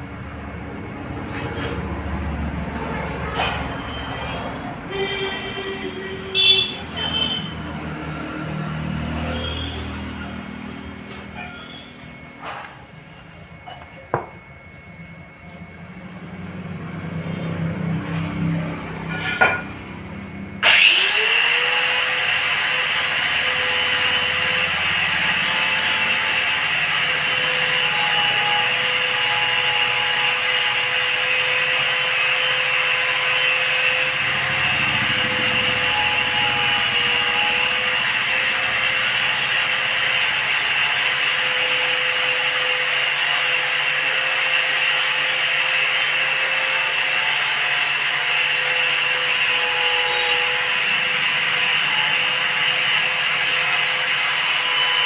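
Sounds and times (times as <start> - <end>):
power tool motor whine: 6.4 - 12.8, 20.6 - 55.0.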